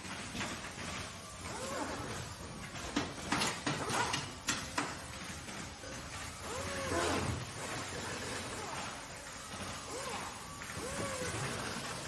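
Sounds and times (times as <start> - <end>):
machinery low hum: 0.0 - 12.0
machine squeal: 1.4 - 2.4, 5.8 - 12.0.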